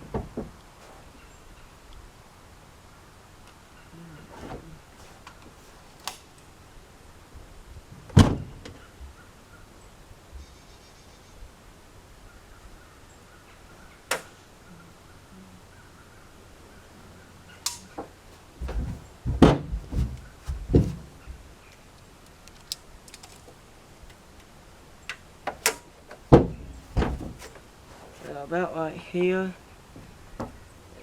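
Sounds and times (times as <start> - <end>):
tools and metal clanking: 17.6 - 21.4, 25.4 - 28.3
heavy thumps: 17.7 - 21.6, 25.5 - 28.4.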